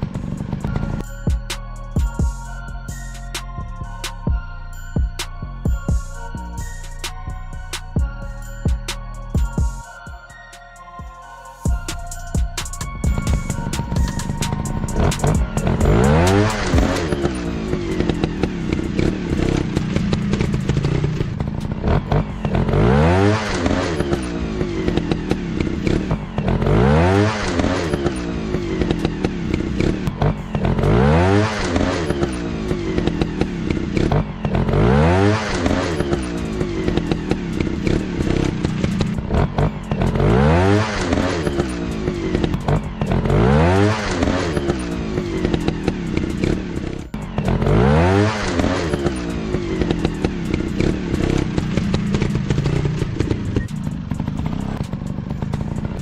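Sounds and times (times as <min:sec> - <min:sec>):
dirt bike engine revving: 0:00.0 - 0:01.0, 0:12.8 - 0:56.0.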